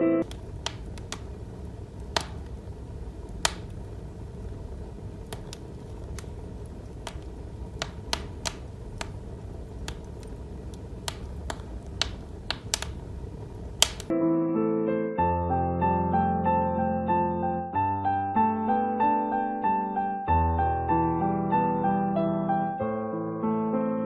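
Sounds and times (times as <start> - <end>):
crackling fire sound effect: 0.2 - 14.1.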